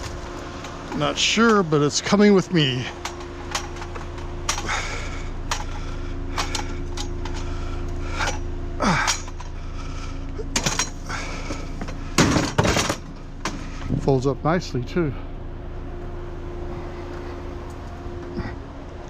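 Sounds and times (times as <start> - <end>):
steady low hum: 0.0 - 19.0
metal clinks and clanks: 2.9 - 4.7, 9.0 - 9.6, 10.5 - 11.1
metal rattle: 10.5 - 13.6.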